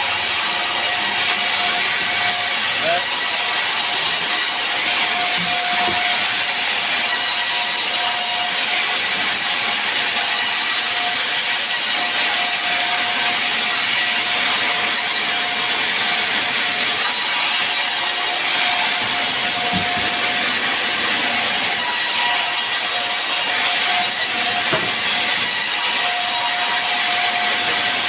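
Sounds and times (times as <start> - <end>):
sawmill saw cutting wood: 0.0 - 28.0.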